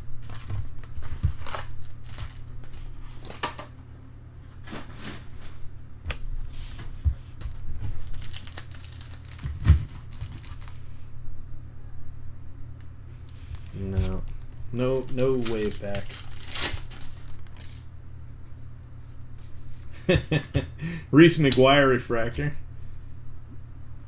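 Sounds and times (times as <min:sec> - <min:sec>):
plastic foil wrappers crinkling: 0:00.0 - 0:03.5, 0:07.8 - 0:11.0, 0:13.3 - 0:17.9
steady low hum: 0:00.0 - 0:24.0.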